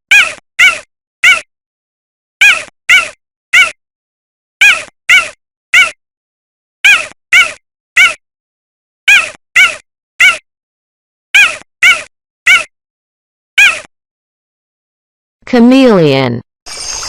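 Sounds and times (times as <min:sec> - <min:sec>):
cheetah chirping: 0:02.4 - 0:03.7, 0:06.8 - 0:08.2, 0:11.4 - 0:12.6, 0:13.6 - 0:13.9.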